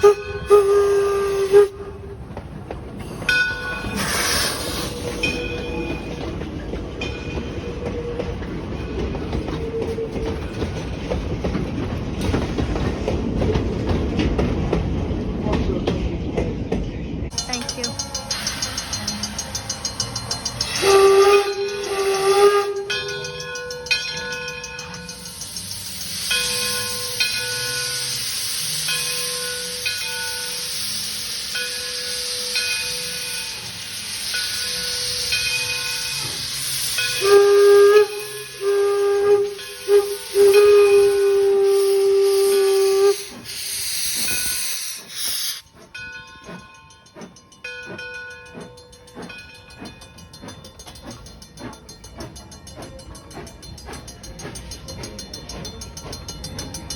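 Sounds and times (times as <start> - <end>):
steam locomotive whistle: 0.0 - 2.3, 18.2 - 45.6
steam hissing: 3.1 - 6.2, 18.0 - 46.8.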